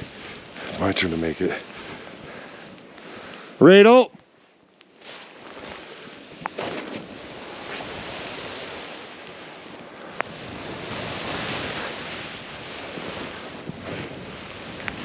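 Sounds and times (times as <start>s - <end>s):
wind on microphone: 0.0s - 2.5s, 5.6s - 15.0s
snowboard carving through snow: 0.0s - 3.3s, 5.0s - 15.0s.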